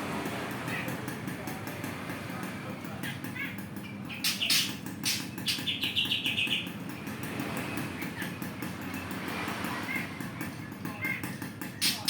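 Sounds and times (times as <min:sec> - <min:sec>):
songbird chirping and trilling: 0:02.9 - 0:12.0.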